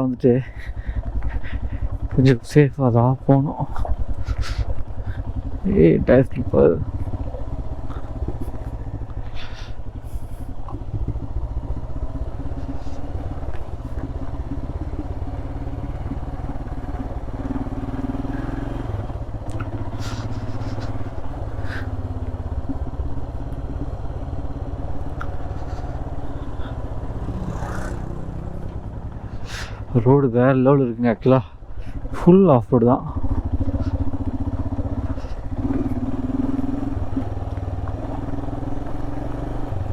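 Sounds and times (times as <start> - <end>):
motorcycle engine running: 0.0 - 39.9
motorcycle knocks and rattles: 3.7 - 17.8, 19.2 - 29.5.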